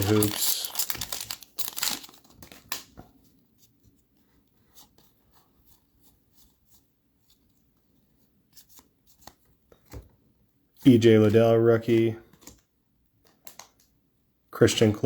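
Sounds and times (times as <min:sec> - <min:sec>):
plastic wrapper crinkling: 0:00.0 - 0:03.0.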